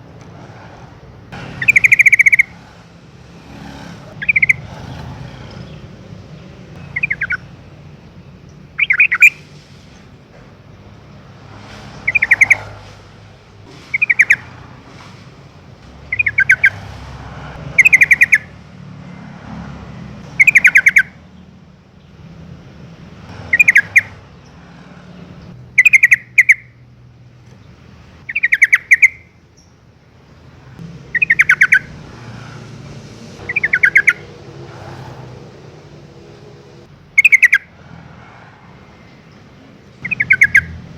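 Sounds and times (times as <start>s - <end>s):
bird chattering calls: 1.4s - 6.0s, 6.8s - 7.6s, 8.5s - 9.5s, 12.0s - 13.0s, 13.7s - 15.1s, 16.1s - 16.9s, 17.7s - 18.5s, 20.3s - 21.2s, 23.4s - 24.6s, 25.8s - 26.7s, 28.2s - 29.7s, 31.1s - 32.0s, 33.4s - 34.4s, 37.1s - 37.7s, 39.8s - 40.9s.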